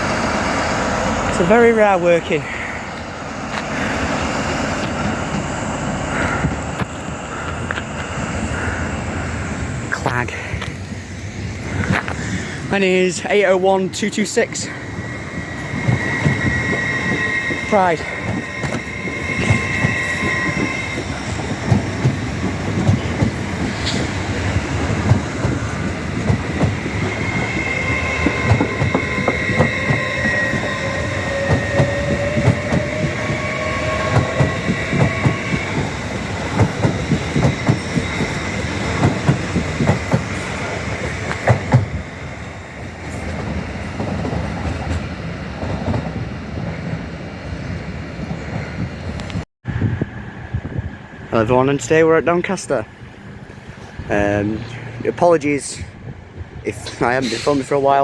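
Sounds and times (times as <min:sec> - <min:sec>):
wheels clicking over rail joints: 0:11.7 - 0:41.9.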